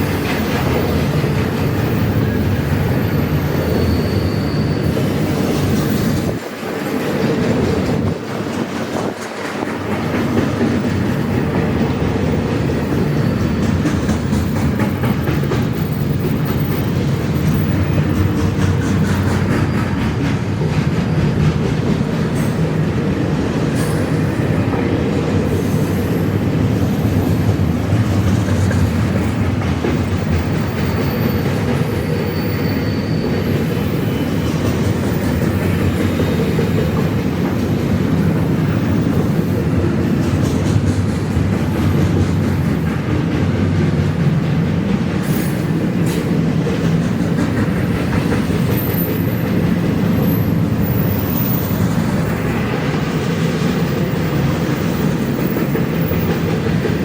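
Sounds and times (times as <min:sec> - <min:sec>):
freight train wheels rumbling: 0:00.0 - 0:57.0
faint high wheel squeals: 0:01.7 - 0:06.4, 0:12.6 - 0:14.5, 0:30.4 - 0:36.6, 0:48.6 - 0:52.2.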